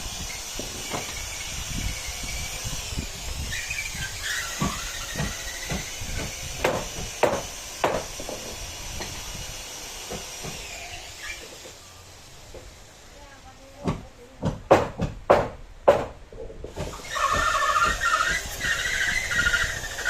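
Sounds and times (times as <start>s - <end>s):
steady hiss: 0.0s - 14.5s
hammer blows on wood: 2.7s - 9.2s, 13.8s - 20.0s.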